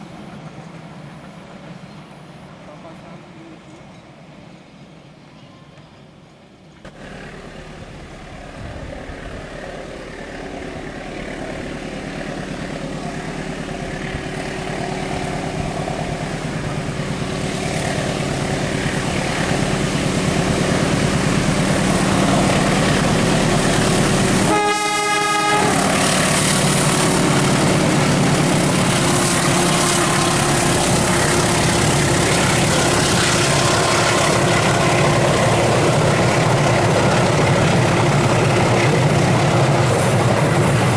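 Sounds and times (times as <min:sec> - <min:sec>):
train rumble and wheel noise: 0:00.0 - 0:40.9
locomotive horn blast: 0:24.3 - 0:26.4.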